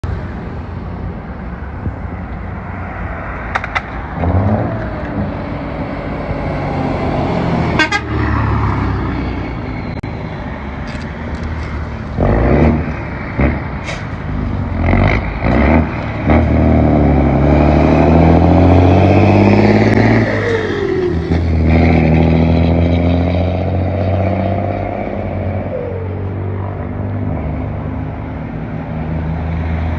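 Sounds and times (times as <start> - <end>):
lorry engine revving: 14.8 - 25.8.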